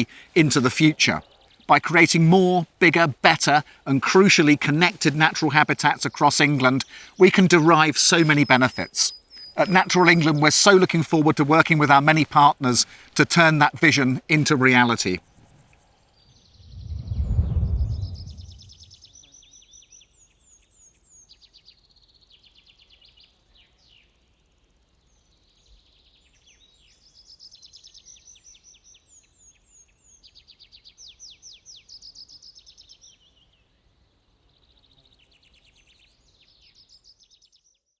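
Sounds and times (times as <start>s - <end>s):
birds singing with trills: 5.2s - 13.4s
deep low boom: 16.6s - 18.9s.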